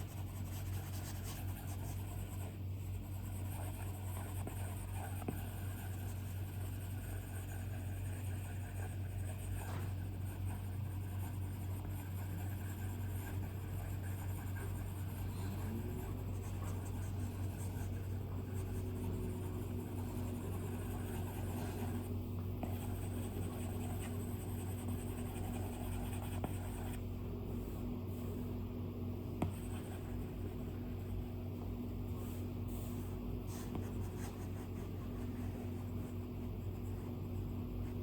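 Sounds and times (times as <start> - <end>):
stylus scratching on glass screen: 0.0 - 28.6
steady low hum: 0.0 - 38.0.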